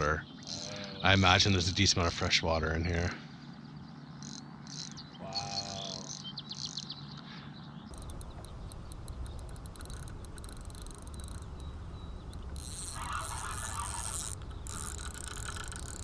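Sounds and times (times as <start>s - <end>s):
birds chirping: 0.0s - 16.0s
faint sparse clicks: 7.9s - 12.8s.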